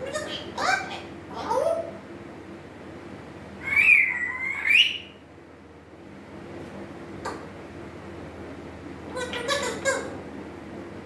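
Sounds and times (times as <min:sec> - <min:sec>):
parrot whistling call: 0:03.6 - 0:05.2.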